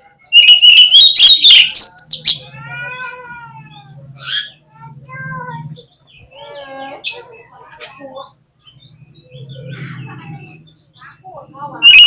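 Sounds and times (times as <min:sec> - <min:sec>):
soft drawn-out bird calls: 0:00.0 - 0:12.0
bird song with clicks and whistles: 0:00.3 - 0:02.4.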